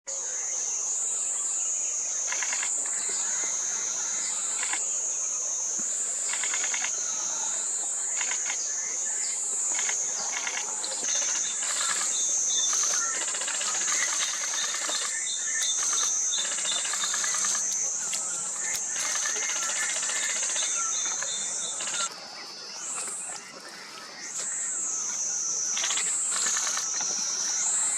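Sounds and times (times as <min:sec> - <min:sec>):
high-pitched insect drone: 0:00.1 - 0:27.9
bird calls and chirps: 0:08.2 - 0:25.1.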